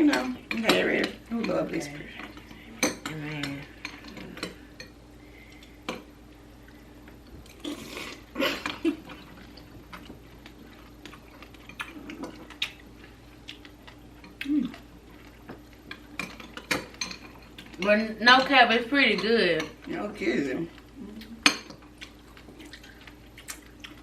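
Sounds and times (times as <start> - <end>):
faint steady hum: 0.0 - 24.0
chewing: 7.4 - 17.8, 20.7 - 24.0.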